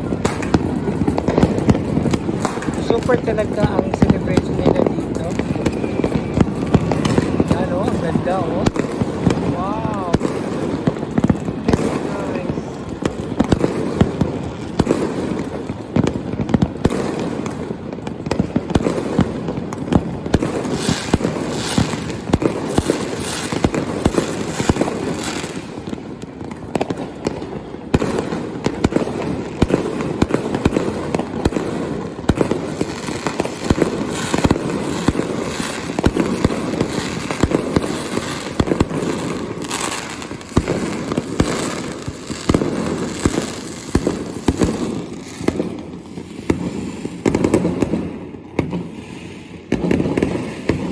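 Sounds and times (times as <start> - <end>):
fireworks booming and crackling: 0.0 - 50.9.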